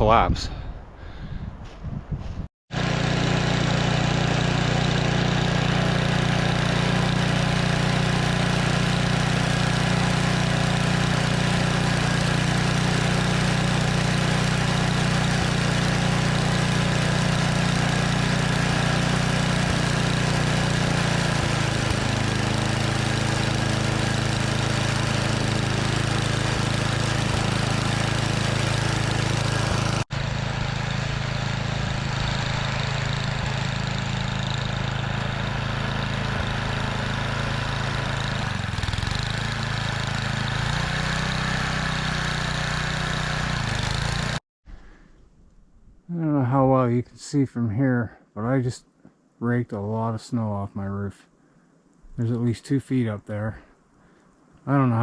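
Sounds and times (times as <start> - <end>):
snowblower engine running: 2.7 - 44.4.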